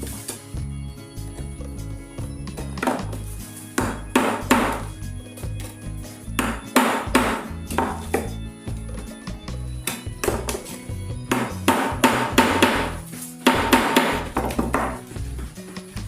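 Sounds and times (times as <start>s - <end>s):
background music with bass: 0.0s - 16.0s
tool knocking on metal wire: 11.3s - 15.0s.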